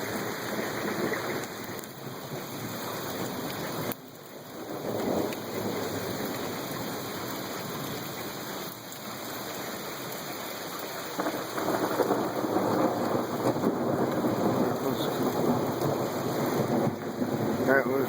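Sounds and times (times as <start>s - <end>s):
rain falling: 0.0s - 18.0s
thunder rumbling: 3.2s - 6.8s, 11.1s - 18.0s.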